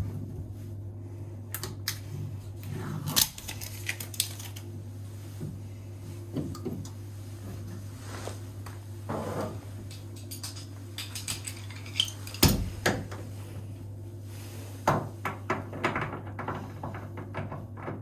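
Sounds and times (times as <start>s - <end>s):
metal tools clinking: 9.9s - 12.7s.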